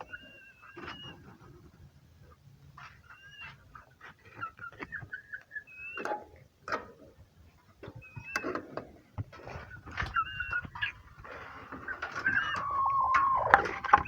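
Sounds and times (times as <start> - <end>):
chickens making high whining calls: 10.1 - 14.0.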